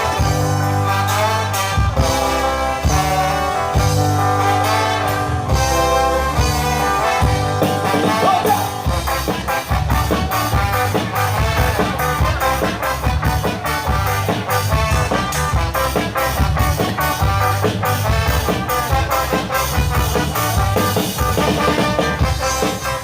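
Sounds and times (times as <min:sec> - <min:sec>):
brass horns: 0:00.0 - 0:23.0
ska band playing: 0:00.0 - 0:23.0.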